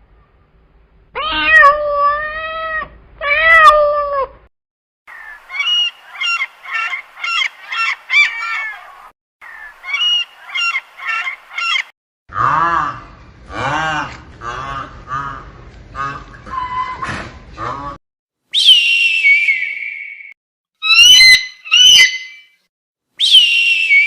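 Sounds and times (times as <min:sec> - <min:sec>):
cat meowing: 0:01.2 - 0:04.4
rapid waterfowl calls: 0:05.1 - 0:11.9.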